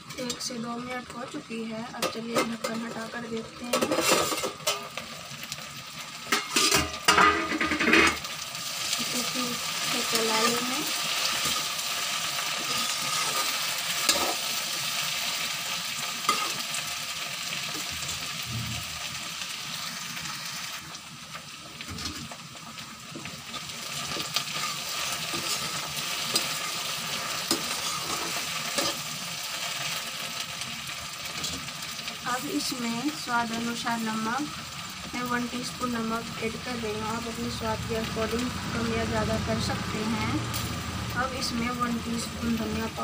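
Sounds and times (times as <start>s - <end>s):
okra sizzling in hot oil: 0.0s - 43.0s
metal spatula scraping a pan: 2.0s - 5.0s, 6.3s - 8.3s, 9.9s - 15.2s, 16.2s - 16.8s, 24.0s - 29.2s.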